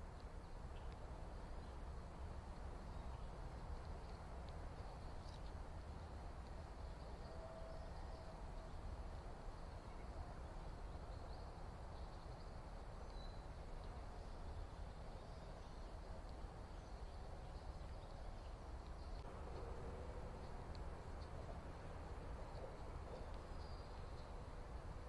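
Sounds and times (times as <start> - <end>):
low rumble and hiss: 0.0 - 25.0
faint bird chirps: 9.6 - 19.2, 22.5 - 24.5.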